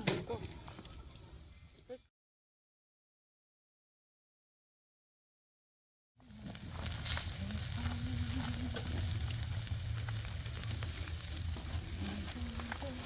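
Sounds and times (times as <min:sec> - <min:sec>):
food sizzling with pops: 0:00.0 - 0:01.5, 0:06.2 - 0:13.0.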